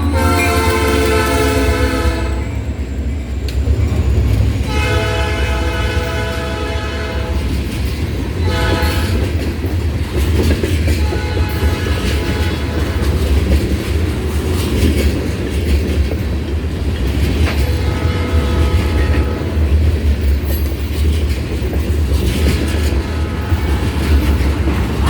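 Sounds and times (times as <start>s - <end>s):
locomotive horn blast: 0.0s - 2.7s, 4.6s - 7.5s, 8.4s - 9.3s, 11.0s - 13.3s, 17.6s - 19.8s, 23.0s - 25.0s
freight train rumbling: 0.0s - 25.0s
wheels clicking over rail joints: 5.9s - 25.0s.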